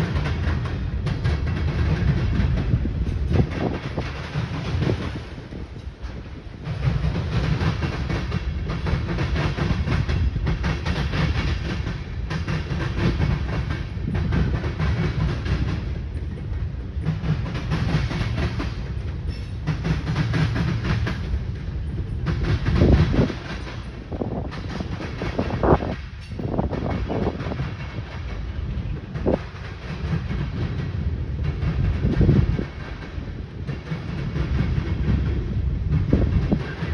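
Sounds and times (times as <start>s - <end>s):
train wheels clicking over rail joints: 0.0s - 36.9s.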